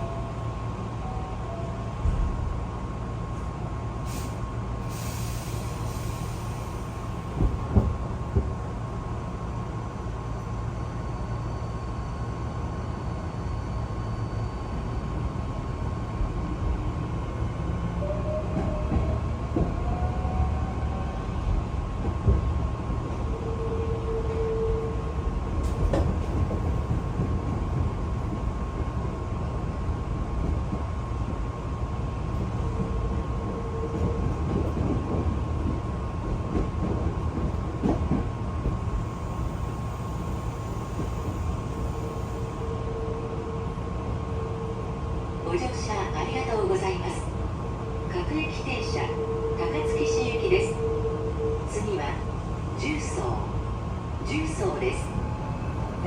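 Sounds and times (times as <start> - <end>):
train wheels rumbling on rail: 0.3 - 11.5, 12.2 - 56.0.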